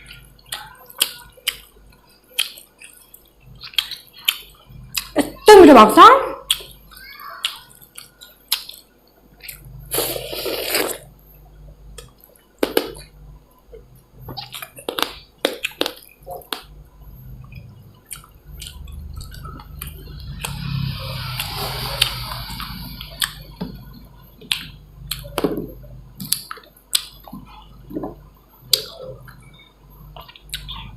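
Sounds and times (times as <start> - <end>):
wet chewing and squishing: 2.4 - 5.2, 17.4 - 20.6, 30.2 - 30.9.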